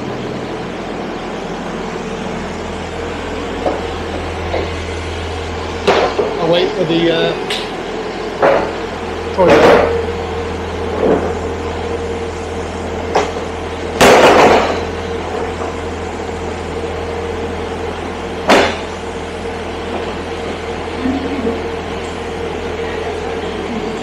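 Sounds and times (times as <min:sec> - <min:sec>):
train hum inside carriage: 0:00.0 - 0:24.0.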